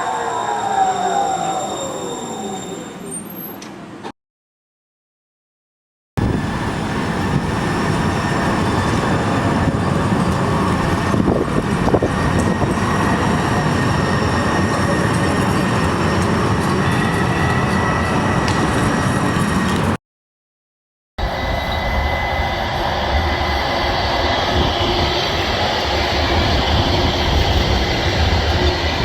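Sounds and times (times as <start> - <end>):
high train whine: 0.0 - 4.1, 6.2 - 20.0, 21.2 - 29.0
train rumbling on track: 6.2 - 20.0, 21.2 - 29.0.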